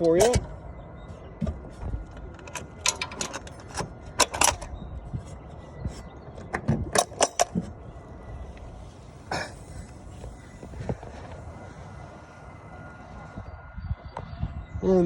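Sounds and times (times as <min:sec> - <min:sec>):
sharp clicks and knocks: 0:00.0 - 0:00.6, 0:01.2 - 0:04.8, 0:05.9 - 0:07.8.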